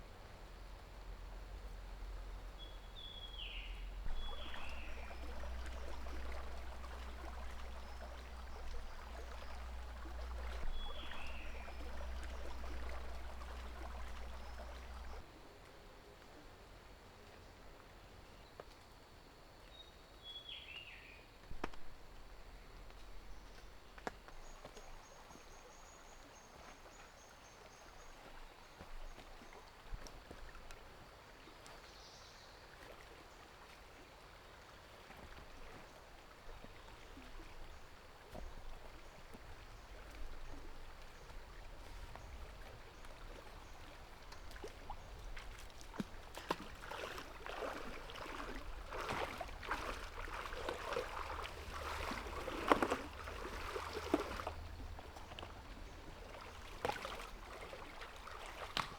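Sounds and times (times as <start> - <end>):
water splashing and trickling: 0.0 - 15.4, 21.5 - 58.9.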